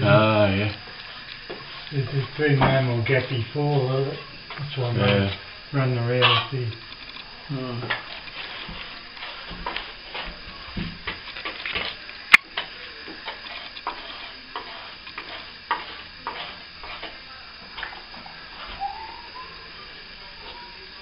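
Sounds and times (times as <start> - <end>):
blade scraping and tapping plaster: 12.6 - 17.2.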